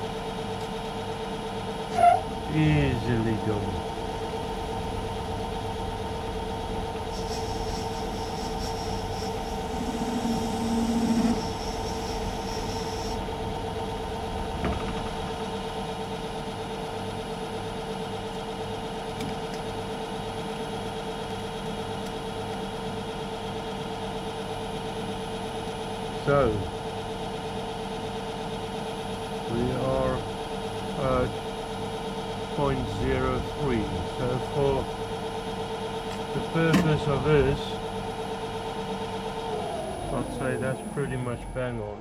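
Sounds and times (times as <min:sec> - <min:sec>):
high whine: 0:01.9 - 0:16.3, 0:36.4 - 0:42.0
metal lathe motor hum: 0:03.6 - 0:16.7, 0:37.2 - 0:42.0.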